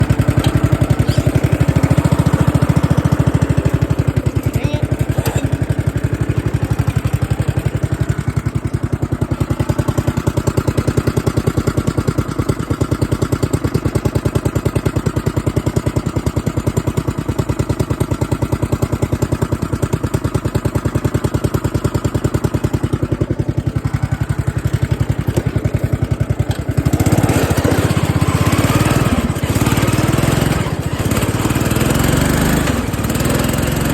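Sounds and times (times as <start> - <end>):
lawn mower engine running: 0.0 - 33.9.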